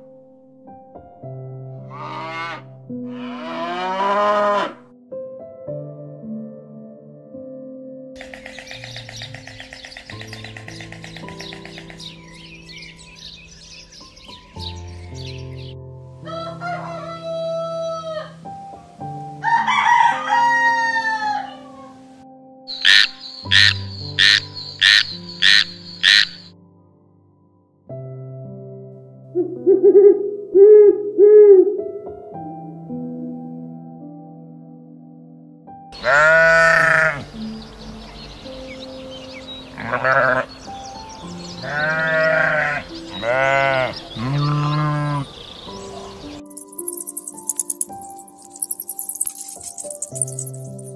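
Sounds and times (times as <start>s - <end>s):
soft background music: 0.0s - 50.9s
sheep bleating: 1.9s - 4.8s, 36.0s - 37.3s, 39.8s - 40.5s, 41.6s - 45.4s
animal calls: 22.7s - 26.5s, 36.0s - 37.3s, 39.6s - 40.7s, 41.5s - 50.8s.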